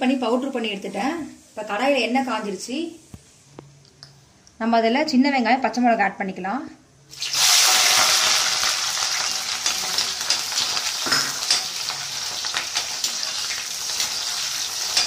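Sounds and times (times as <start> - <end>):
vegetables sizzling in hot oil: 7.1 - 15.0.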